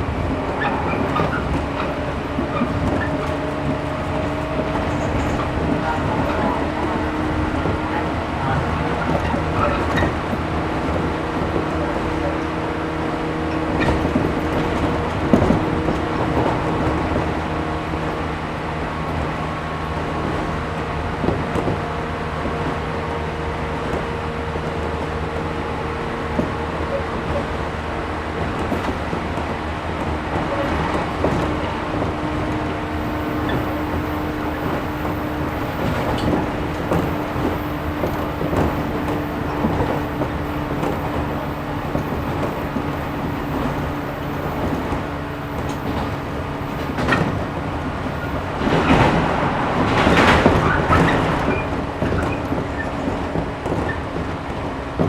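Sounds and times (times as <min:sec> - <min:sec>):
train wheels rumbling: 0:00.0 - 0:55.0.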